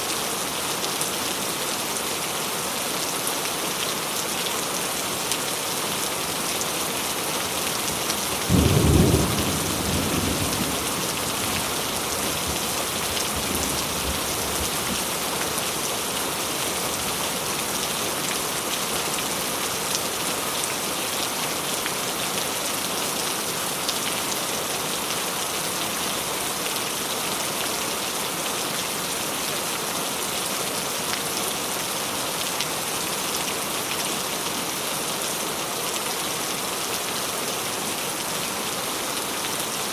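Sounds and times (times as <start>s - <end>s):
heavy rain falling: 0.1s - 39.9s
thunder clap rumbling: 8.5s - 11.0s.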